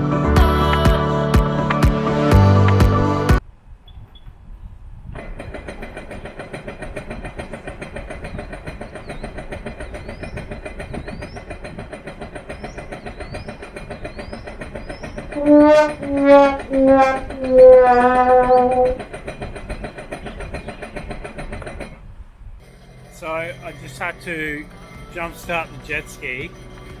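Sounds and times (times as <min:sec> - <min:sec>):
engine blips: 0:05.6 - 0:21.8.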